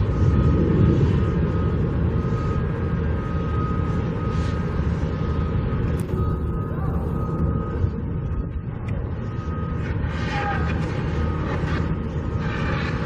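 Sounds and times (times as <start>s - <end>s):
reversing alarm beeping: 0.0s - 13.0s
wind buffeting microphone: 0.0s - 13.0s.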